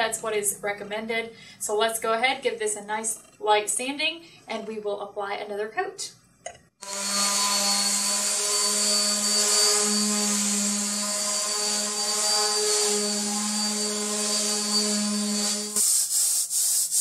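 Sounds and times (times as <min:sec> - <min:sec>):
orbital sander running: 0:06.8 - 0:15.8.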